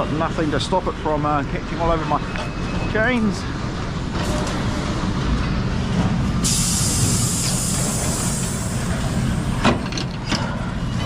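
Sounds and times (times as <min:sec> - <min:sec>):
compressed air hissing: 0:06.4 - 0:09.6.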